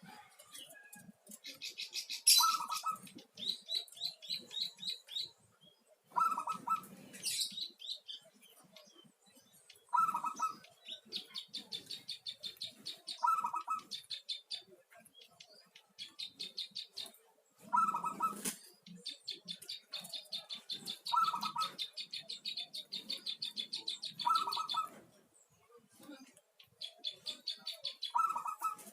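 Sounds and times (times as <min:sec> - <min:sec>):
dove cooing: 0:01.5 - 0:05.2, 0:06.1 - 0:07.5, 0:09.9 - 0:14.0, 0:17.6 - 0:25.1, 0:26.8 - 0:28.9
rapid high chirping: 0:26.7 - 0:28.9.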